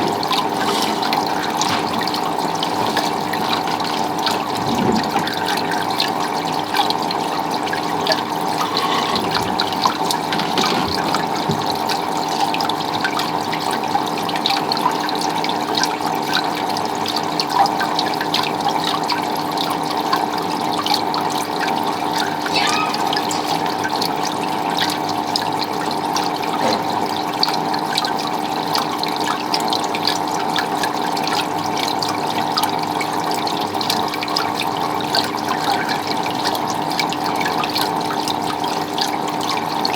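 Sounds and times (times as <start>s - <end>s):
water running and splashing: 0.0s - 17.5s.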